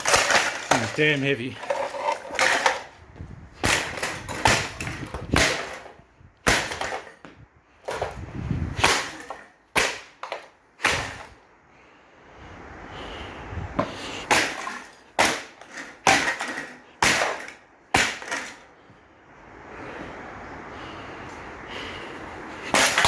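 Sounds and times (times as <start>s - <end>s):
desk fan being smashed: 0.0s - 11.4s, 13.8s - 18.7s, 22.6s - 23.0s.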